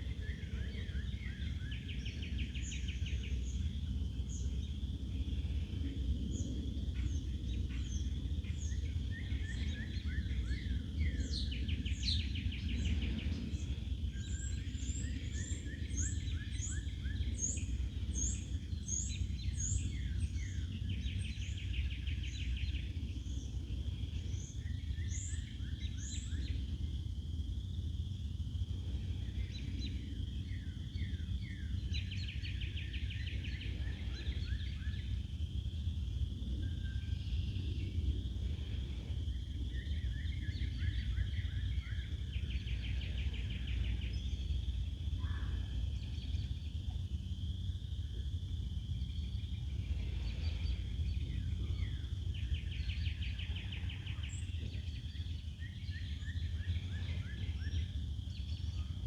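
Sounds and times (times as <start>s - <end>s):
steady low rumble: 0.0s - 59.0s
bird song with rapid trill: 0.1s - 4.8s, 6.3s - 23.5s, 29.5s - 35.2s, 39.7s - 46.8s, 50.6s - 59.0s.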